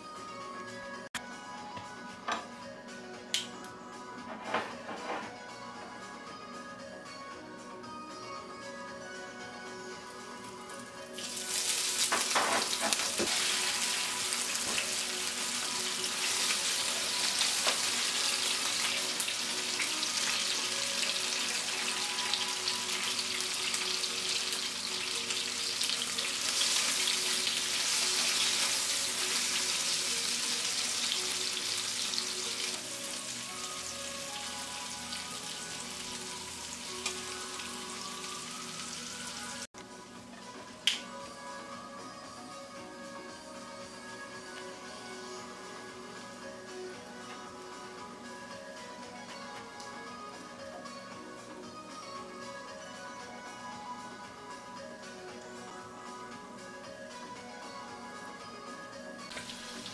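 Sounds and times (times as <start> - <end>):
faint background music: 0.0 - 59.9
vegetables sizzling in a frying pan: 11.1 - 39.6, 59.3 - 59.9.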